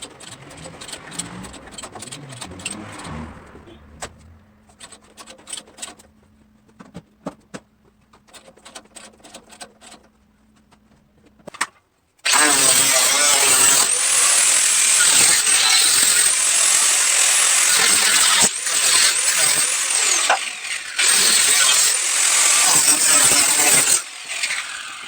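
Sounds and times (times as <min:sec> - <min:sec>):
power tool running: 0:00.0 - 0:04.8, 0:12.3 - 0:25.0.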